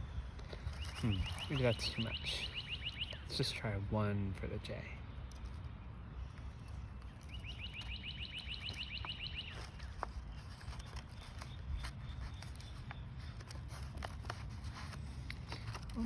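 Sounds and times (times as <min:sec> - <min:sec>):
low wind rumble: 0:00.0 - 0:16.0
songbird trilling: 0:00.5 - 0:03.7, 0:06.2 - 0:13.5.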